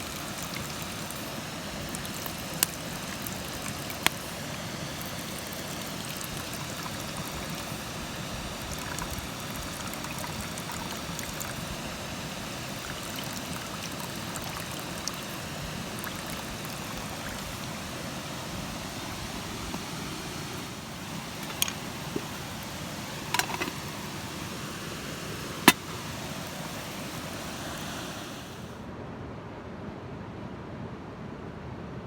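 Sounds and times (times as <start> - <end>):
waterfall and stream rushing: 0.0 - 28.8.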